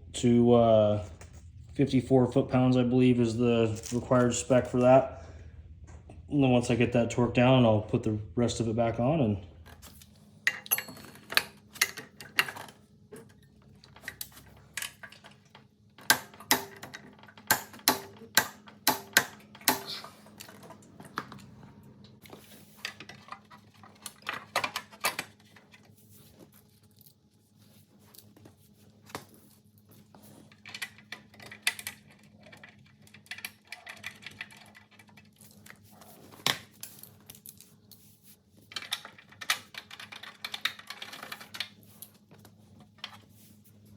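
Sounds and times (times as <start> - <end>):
metal hand tools clinking on engine parts: 10.5 - 12.6.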